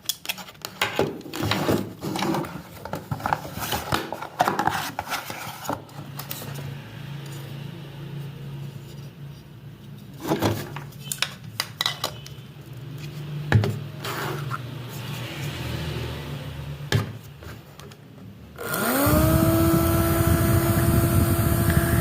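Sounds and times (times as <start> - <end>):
mini fan motor humming: 18.6 - 22.0.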